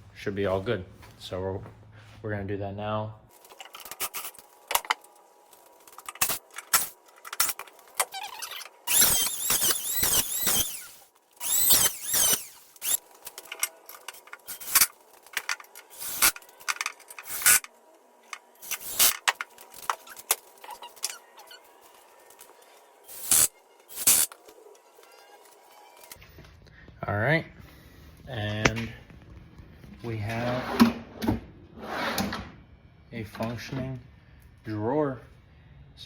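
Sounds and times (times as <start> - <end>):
high wavering squeaking: 8.0 - 13.0.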